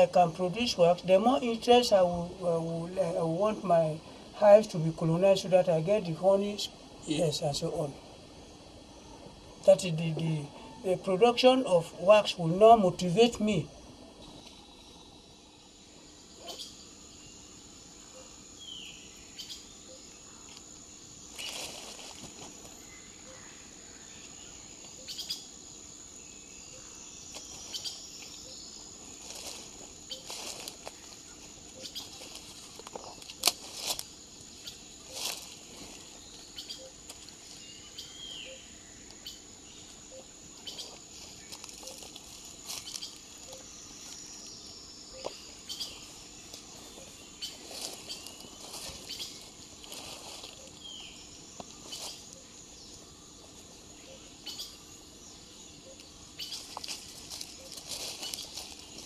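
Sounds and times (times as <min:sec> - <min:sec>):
high-pitched insect drone: 0:00.0 - 0:59.0.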